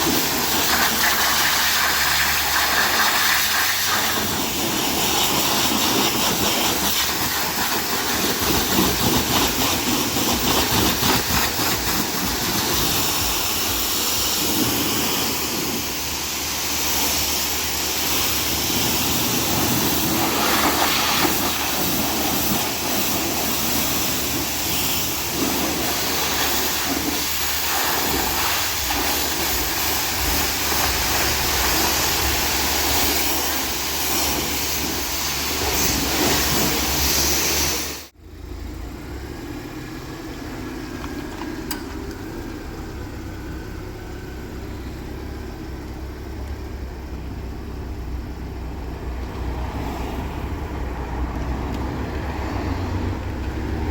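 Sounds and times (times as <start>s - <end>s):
pressure washer spraying water: 0.0s - 38.2s.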